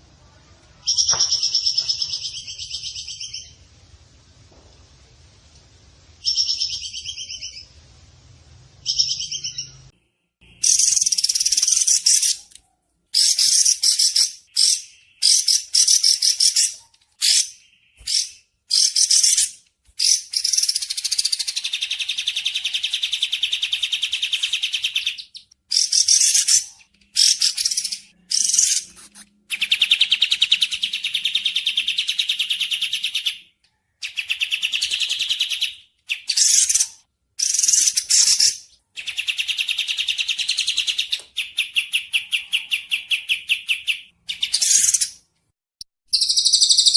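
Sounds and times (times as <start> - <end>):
bird trilling: 10.6 - 12.5.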